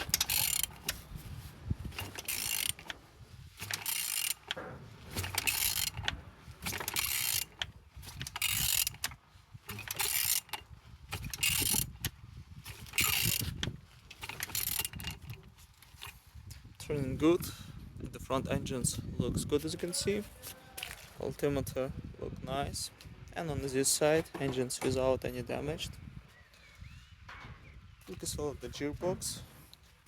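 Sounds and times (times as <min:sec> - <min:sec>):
ratchet wrench clicks: 0:00.0 - 0:01.0, 0:02.0 - 0:03.0, 0:03.6 - 0:04.6, 0:05.2 - 0:12.1, 0:12.7 - 0:15.3
engine turned over by hand: 0:00.0 - 0:16.2.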